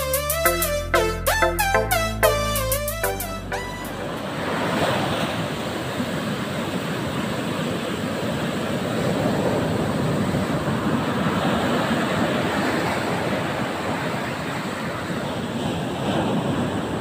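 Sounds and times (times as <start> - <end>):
waves breaking on beach: 4.1 - 17.0.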